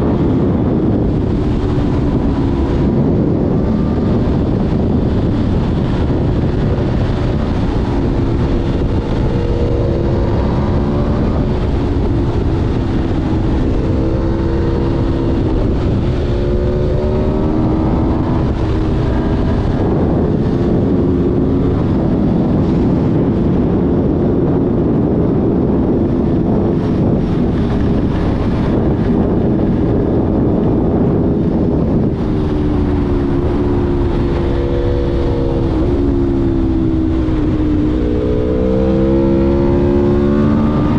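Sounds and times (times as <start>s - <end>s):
motorcycle engine accelerating: 0.0s - 40.9s
wind rush on microphone: 0.0s - 40.9s.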